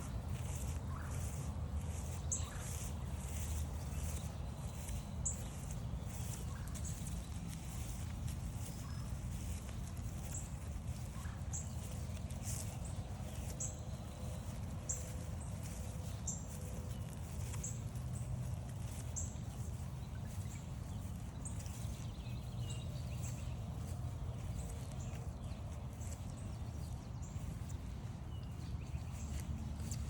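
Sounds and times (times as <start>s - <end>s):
footsteps on trail: 0.0s - 30.0s.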